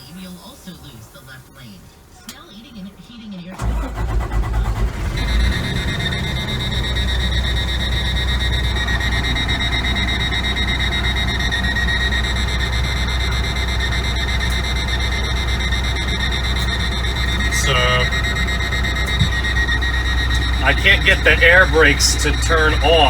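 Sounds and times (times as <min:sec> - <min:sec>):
diesel truck engine idling: 0:02.4 - 0:23.0
high-pitched warning buzzer: 0:04.7 - 0:23.0.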